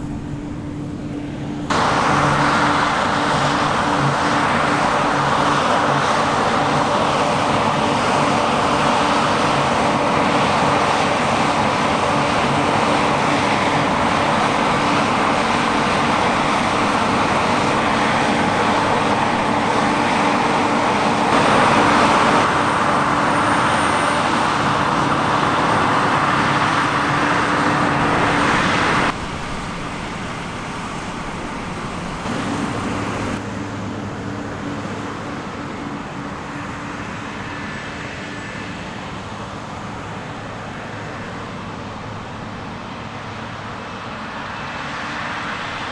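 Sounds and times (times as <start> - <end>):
dense rushing hiss: 0.0 - 23.0, 28.0 - 33.5
diesel engine hum: 0.0 - 45.9.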